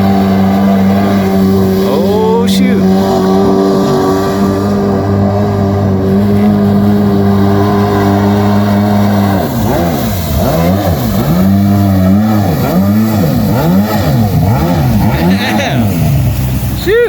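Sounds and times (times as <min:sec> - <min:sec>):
small two-stroke boat engine: 0:00.0 - 0:17.0.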